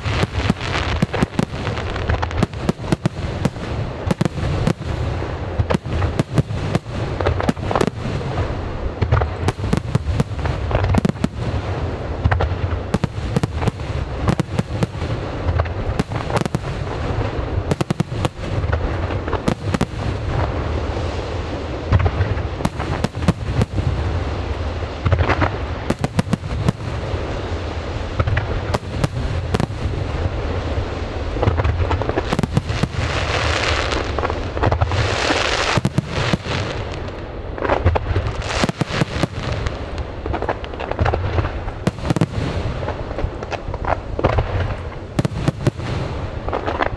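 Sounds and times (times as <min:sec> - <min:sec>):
crackle of bursting shells: 0:00.0 - 0:20.6
firework bangs: 0:00.0 - 0:46.9.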